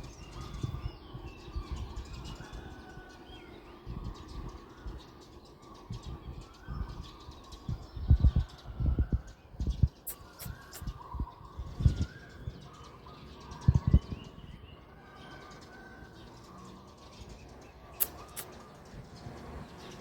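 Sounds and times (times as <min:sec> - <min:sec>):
birds calling: 0:00.0 - 0:20.0
sharp clicks: 0:10.1 - 0:10.9, 0:18.0 - 0:18.6.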